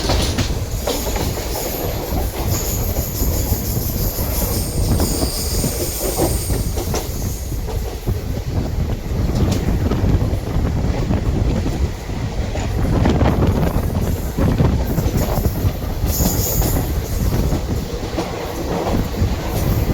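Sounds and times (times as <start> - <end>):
clatter over rail joints: 0.0 - 3.7
train rumbling on track: 0.0 - 19.9
high-pitched wheel squeal: 2.6 - 7.0.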